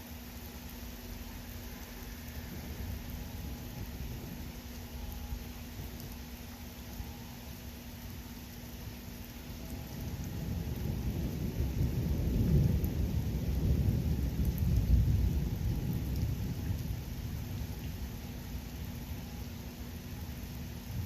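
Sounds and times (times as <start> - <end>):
rain hissing: 0.0 - 21.0
thunder rumbling: 9.6 - 19.0.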